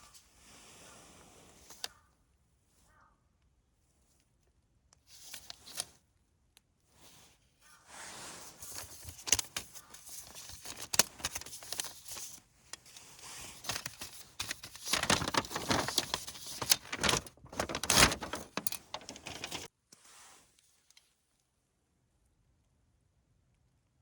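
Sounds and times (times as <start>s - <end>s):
gear rustling: 13.1s - 19.7s.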